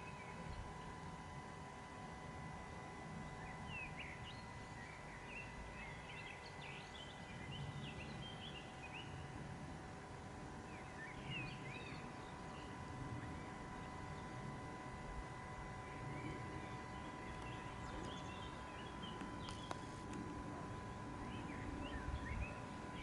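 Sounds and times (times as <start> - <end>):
faint steady hum: 0.0 - 23.0
low background rumble: 0.0 - 23.0
small birds chirping: 3.2 - 9.3, 10.6 - 14.6, 15.5 - 23.0.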